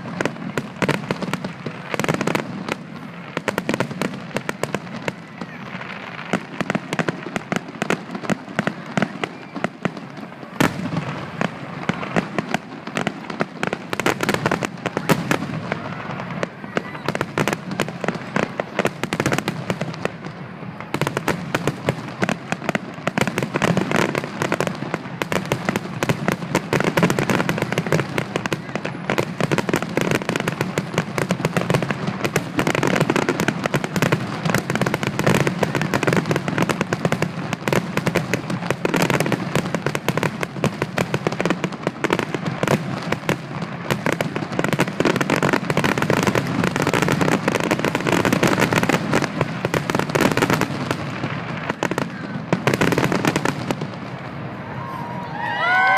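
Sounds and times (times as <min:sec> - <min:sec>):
fireworks bangs and crackling: 0:00.0 - 0:55.9.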